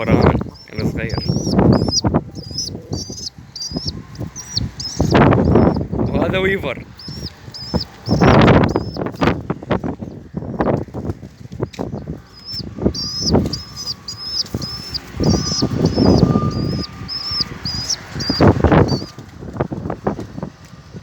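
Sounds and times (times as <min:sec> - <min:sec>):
bird chirping high note: 0:12.4 - 0:19.1.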